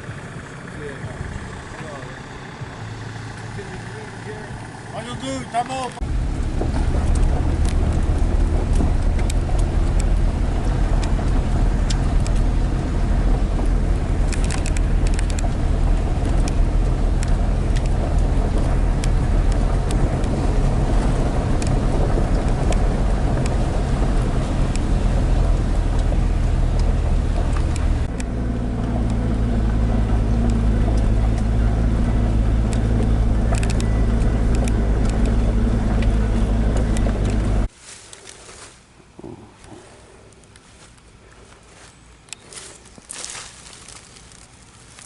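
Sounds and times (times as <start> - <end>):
road noise: 0.0 - 45.0
vehicle engine drone: 0.0 - 45.0
clicks and rattles: 6.6 - 25.0.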